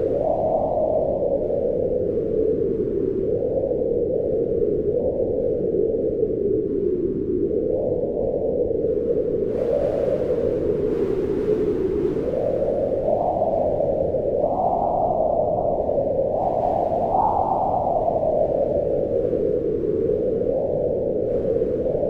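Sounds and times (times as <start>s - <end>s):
wind blowing: 0.0s - 4.1s, 8.7s - 22.0s.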